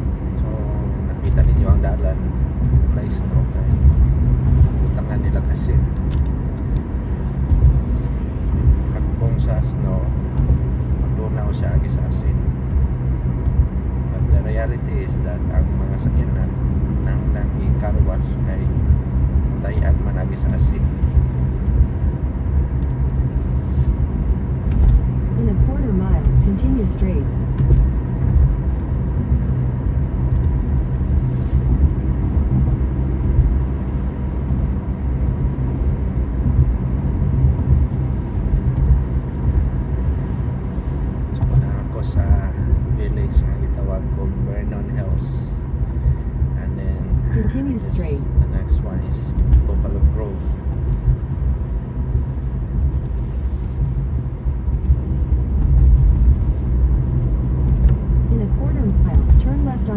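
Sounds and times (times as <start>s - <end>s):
car road rumble inside cabin: 0.0s - 59.9s.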